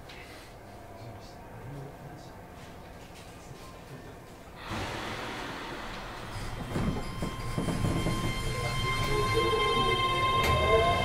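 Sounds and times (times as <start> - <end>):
electric train running noise: 4.6 - 11.0
train knocks: 4.6 - 11.0
train motor whine: 4.6 - 11.0.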